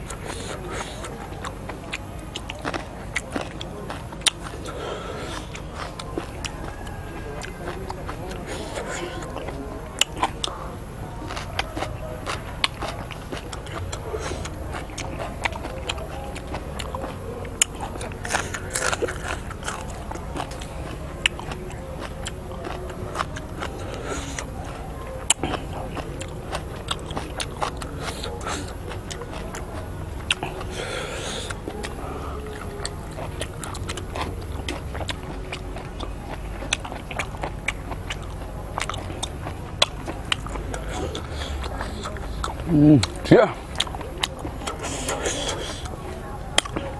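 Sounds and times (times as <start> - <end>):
chewing and biting: 0.0 - 46.9
slurps: 36.0 - 46.9.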